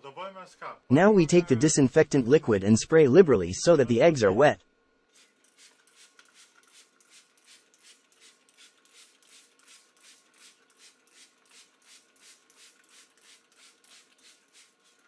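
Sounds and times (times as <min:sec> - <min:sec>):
spray bottle hissing puffs: 0:05.1 - 0:15.0.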